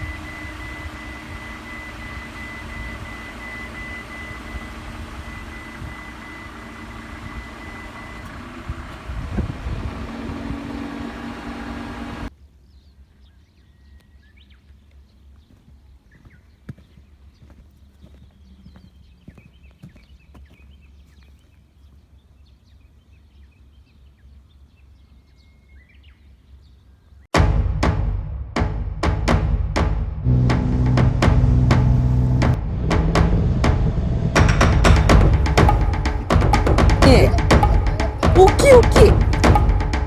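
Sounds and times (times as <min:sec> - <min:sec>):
engine running with high whine: 0:00.0 - 0:12.3, 0:30.2 - 0:40.0.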